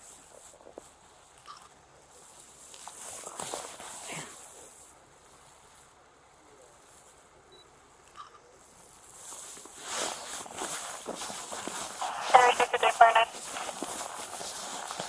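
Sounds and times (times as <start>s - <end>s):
footsteps crunching on snow: 9.3s - 15.0s.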